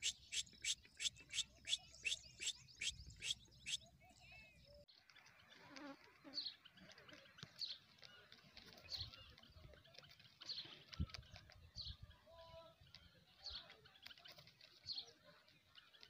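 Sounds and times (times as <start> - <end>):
short high bird chirps: 0.0 - 4.0.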